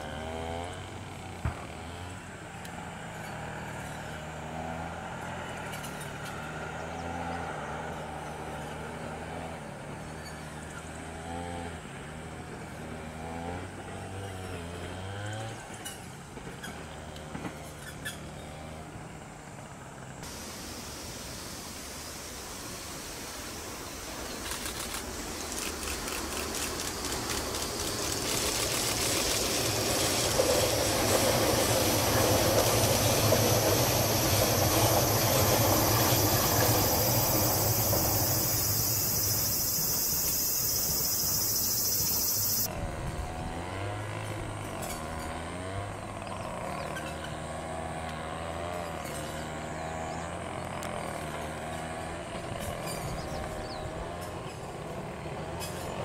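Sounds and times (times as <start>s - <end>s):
insects chirring: 20.2s - 42.7s
train rumble: 20.2s - 43.6s
rhythmic train clicks: 22.6s - 42.7s.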